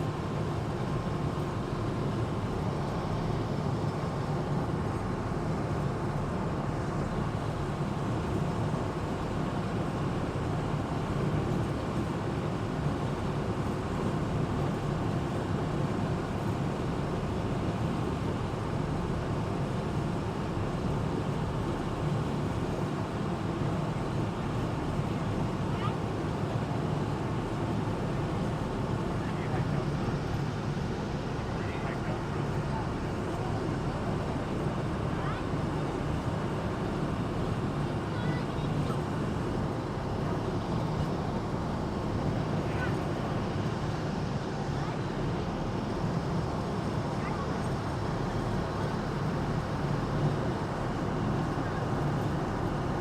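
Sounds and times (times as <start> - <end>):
boat engine drone: 21.1 - 53.0.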